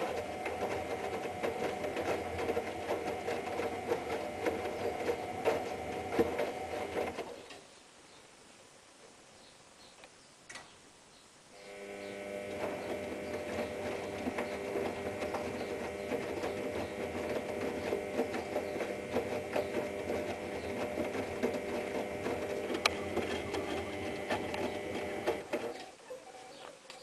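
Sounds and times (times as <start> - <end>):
grinding rumble of drum bearing: 0.0 - 7.2, 11.7 - 25.8
washing machine motor humming: 0.0 - 7.3, 11.6 - 25.9.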